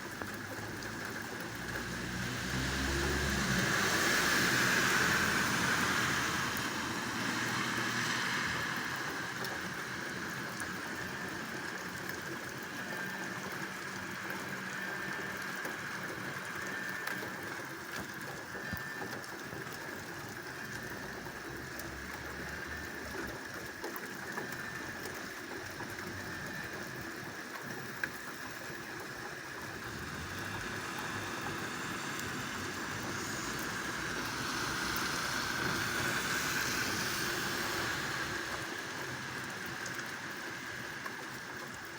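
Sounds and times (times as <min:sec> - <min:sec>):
light rain falling: 0:00.0 - 0:41.9.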